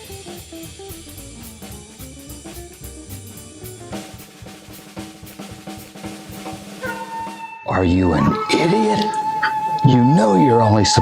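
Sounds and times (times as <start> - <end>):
drum kit beat: 0.0 - 7.3.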